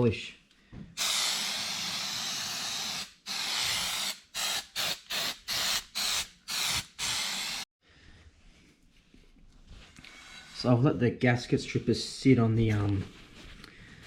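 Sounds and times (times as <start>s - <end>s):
aerosol can spraying: 1.0s - 7.7s.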